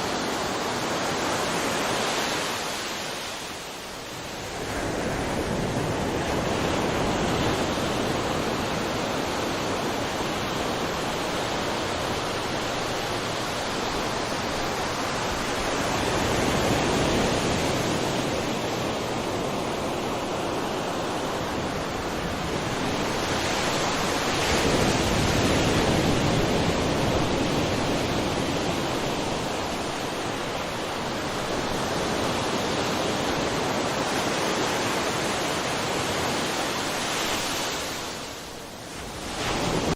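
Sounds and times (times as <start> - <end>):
sea waves washing ashore: 0.0 - 39.9.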